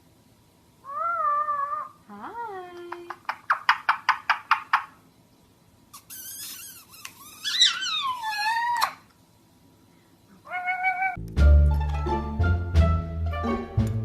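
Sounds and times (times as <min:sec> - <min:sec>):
animal chirping and squawking: 0:00.8 - 0:02.0, 0:03.1 - 0:05.0, 0:05.9 - 0:09.1, 0:10.4 - 0:11.2.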